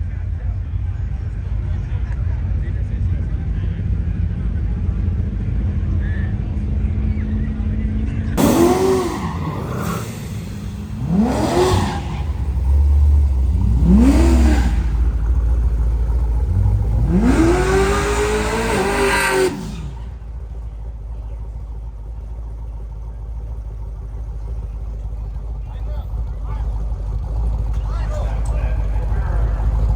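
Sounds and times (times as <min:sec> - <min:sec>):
idling engines rumble: 0:00.0 - 0:29.9
racing car engine revving: 0:08.4 - 0:29.9.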